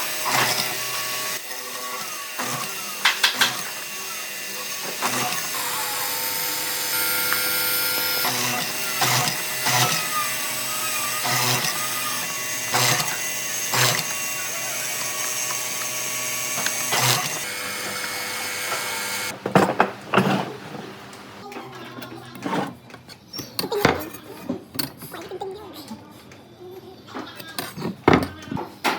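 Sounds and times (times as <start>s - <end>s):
power tool running: 0.0s - 21.4s.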